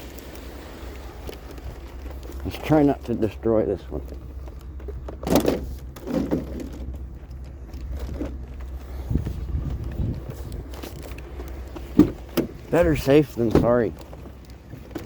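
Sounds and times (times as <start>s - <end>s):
vehicle engine idling: 0.0s - 15.0s
dull thumps of scrap: 5.1s - 6.9s, 9.1s - 12.8s.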